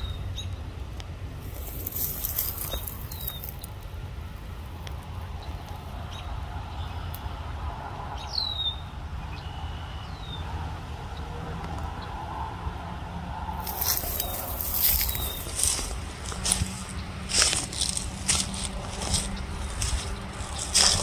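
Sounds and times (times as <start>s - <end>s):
steady low rumble: 0.0s - 9.2s, 10.6s - 21.0s.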